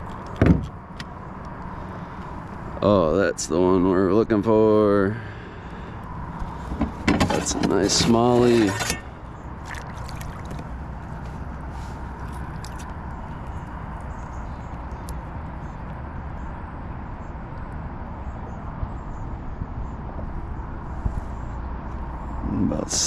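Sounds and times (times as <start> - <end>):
river water rushing: 9.5 - 13.0.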